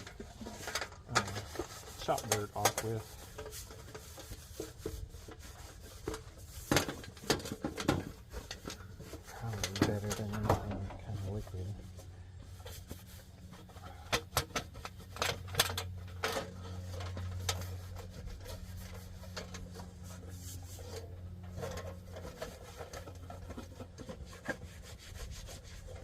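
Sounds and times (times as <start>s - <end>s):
parts clicking and knocking: 0.0s - 11.0s, 12.6s - 20.1s
rag rubbing on housing: 0.0s - 26.0s
steady low hum: 0.0s - 26.0s.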